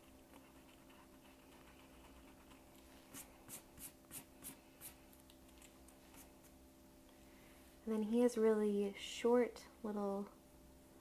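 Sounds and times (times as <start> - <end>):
pencil scratching on paper: 0.3 - 5.0.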